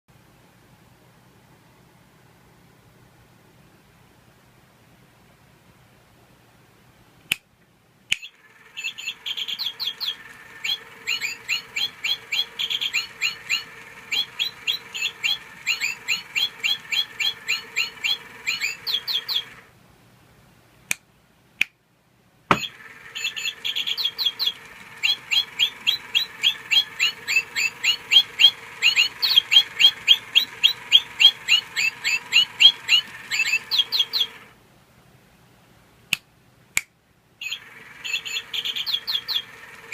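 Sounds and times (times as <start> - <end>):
sharp clicks: 8.1 - 16.8
toy bird electronic chirps: 8.2 - 19.6, 22.5 - 34.5, 37.4 - 39.9.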